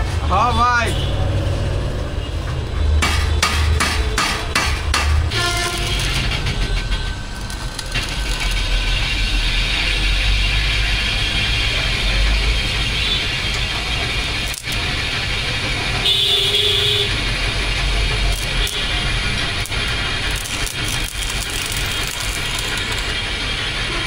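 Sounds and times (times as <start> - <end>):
mechanical clatter and ratcheting: 3.5 - 9.4, 14.2 - 15.3, 17.2 - 23.6.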